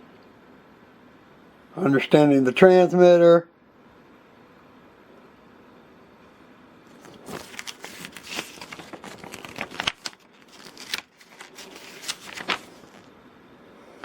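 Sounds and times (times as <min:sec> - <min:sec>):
packaging crinkling and rustling: 0:06.9 - 0:13.1.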